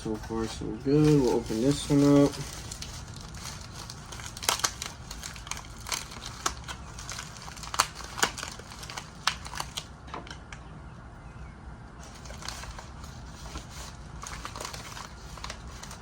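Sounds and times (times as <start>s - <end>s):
packaging crinkling and tearing: 0.0s - 10.4s, 12.0s - 16.0s.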